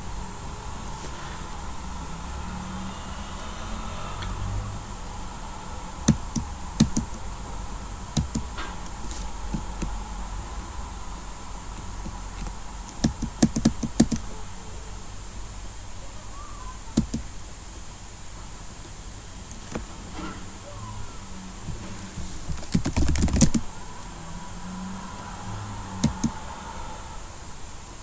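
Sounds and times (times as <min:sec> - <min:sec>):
low background hum: 0:00.0 - 0:28.0
computer mouse clicks: 0:06.1 - 0:07.1, 0:08.1 - 0:10.0, 0:11.8 - 0:14.3, 0:17.0 - 0:17.3, 0:22.5 - 0:23.6, 0:26.0 - 0:26.4.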